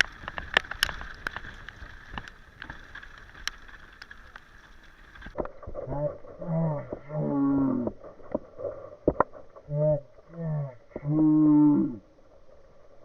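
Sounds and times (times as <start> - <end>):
water: 0.0 - 13.0
wind: 0.0 - 13.0
animal low calls: 5.8 - 8.0, 9.6 - 12.0.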